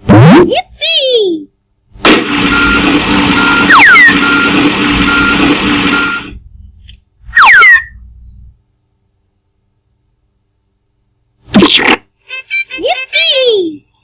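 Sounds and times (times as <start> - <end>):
machine-like humming noise: 1.6 - 14.0
short high beeps: 3.4 - 6.7.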